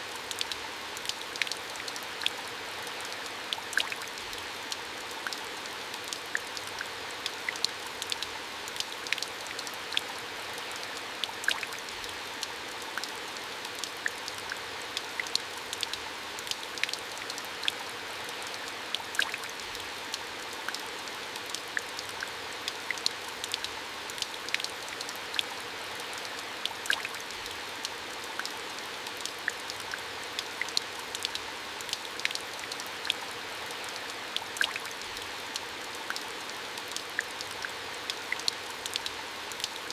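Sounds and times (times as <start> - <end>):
water drips and splashes: 0.0 - 39.9.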